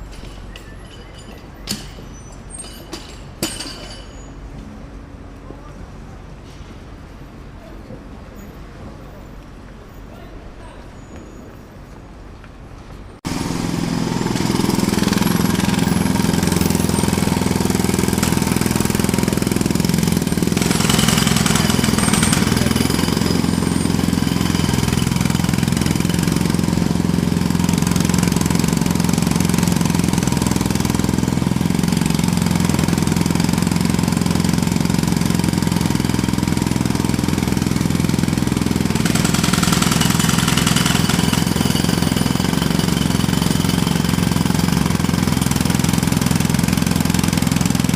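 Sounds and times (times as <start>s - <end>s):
jackhammer hammering: 13.2s - 47.9s.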